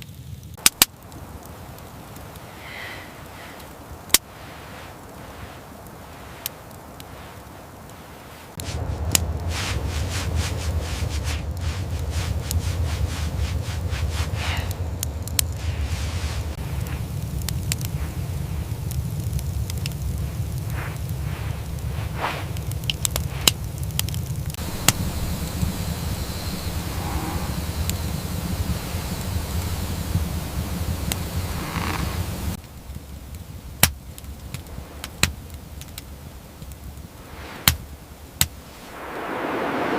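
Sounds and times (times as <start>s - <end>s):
sharp cracks and clicks: 0.0s - 2.3s
sharp cracks: 0.6s - 8.0s
steady rushing noise: 0.6s - 32.6s, 36.7s - 39.9s
low rumble: 23.7s - 29.4s, 38.7s - 39.9s.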